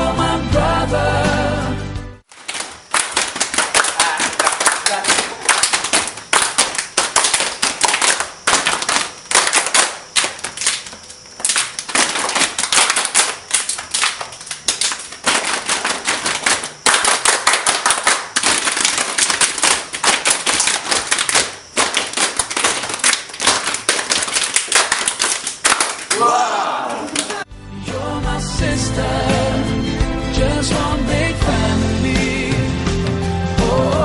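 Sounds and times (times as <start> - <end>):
rapid sharp clicks and cracks: 2.3 - 26.1.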